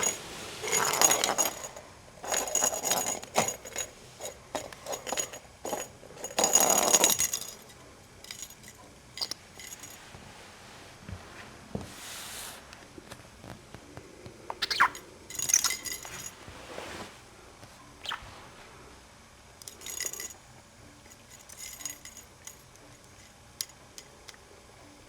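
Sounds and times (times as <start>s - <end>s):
metallic jingles and clinks: 0.0s - 10.0s, 14.7s - 16.4s, 19.6s - 24.2s
budgie chirping: 14.6s - 15.0s.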